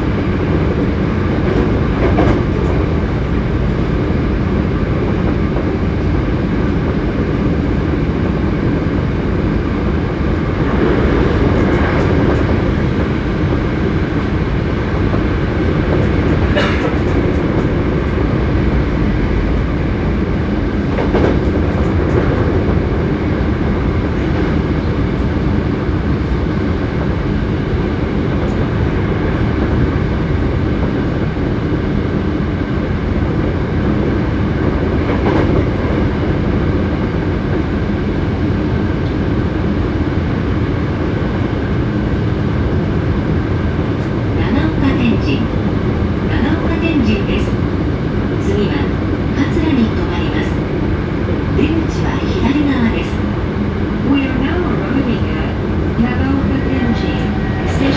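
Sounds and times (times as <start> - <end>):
electric train running: 49.5 - 57.9
brief high-pitched train sound: 56.0 - 57.9.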